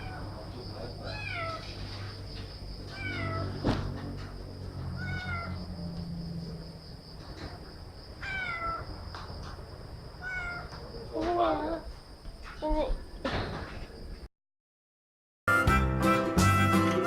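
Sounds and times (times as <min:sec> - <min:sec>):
cat meowing: 0:00.0 - 0:00.3, 0:01.0 - 0:01.8, 0:02.8 - 0:03.6, 0:04.8 - 0:05.7, 0:08.2 - 0:08.9, 0:10.2 - 0:11.9.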